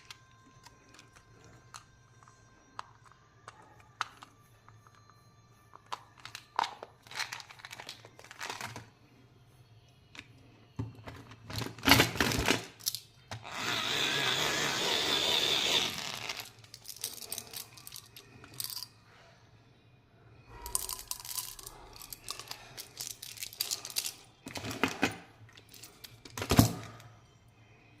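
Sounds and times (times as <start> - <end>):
plastic wrappers crinkling: 5.8 - 9.0, 20.7 - 25.0.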